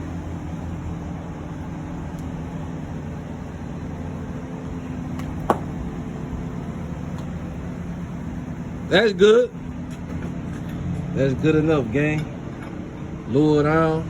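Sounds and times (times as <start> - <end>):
vehicle engine idling: 0.0 - 12.1.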